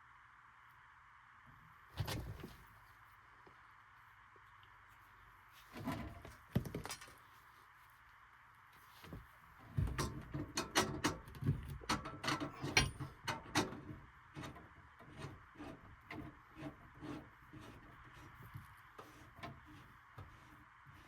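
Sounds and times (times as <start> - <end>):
objects knocking and clattering: 5.9 - 7.2.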